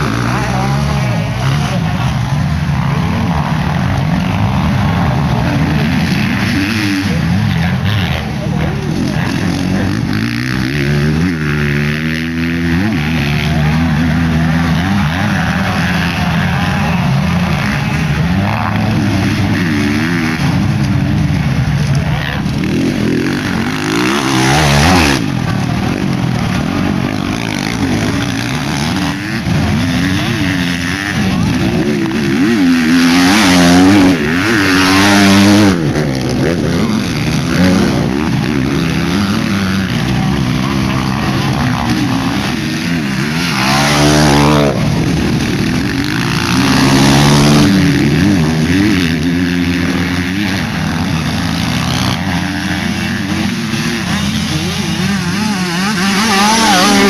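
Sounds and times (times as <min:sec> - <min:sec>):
motocross bike engines revving: 0:00.0 - 0:57.0.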